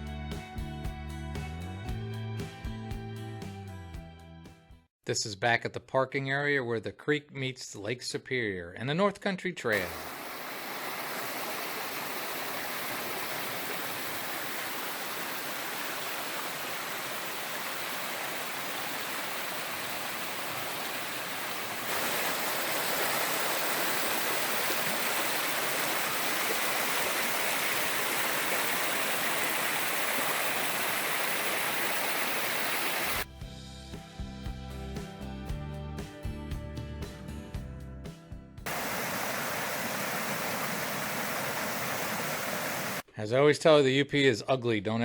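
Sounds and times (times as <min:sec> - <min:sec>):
creek water rushing: 0:09.8 - 0:33.2, 0:38.7 - 0:43.0.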